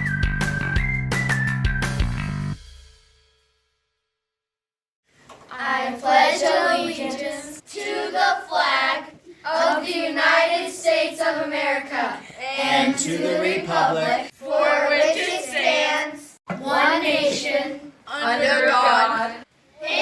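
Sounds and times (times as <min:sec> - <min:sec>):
children singing: 0:05.5 - 0:20.0.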